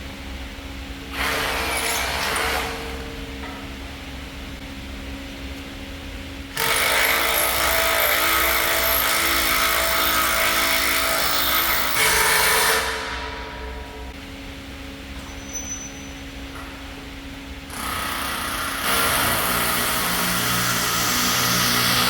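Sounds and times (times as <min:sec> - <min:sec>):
low machine hum: 0:00.0 - 0:22.0
power tool running: 0:06.5 - 0:13.2, 0:17.7 - 0:22.0.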